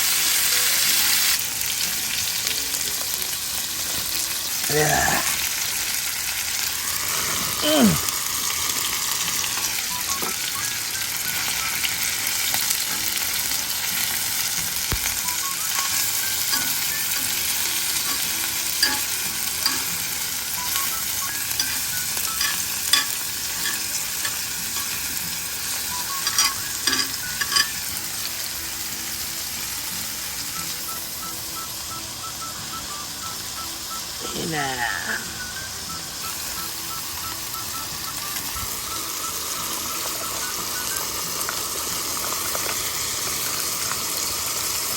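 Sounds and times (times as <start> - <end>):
food sizzling in a pan: 0.0 - 44.9
utensil clicking against pan: 18.0 - 20.0, 21.6 - 25.0, 26.2 - 27.8.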